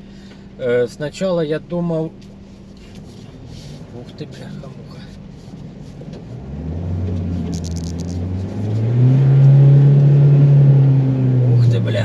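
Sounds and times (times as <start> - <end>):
diesel engine revving: 3.2 - 12.0.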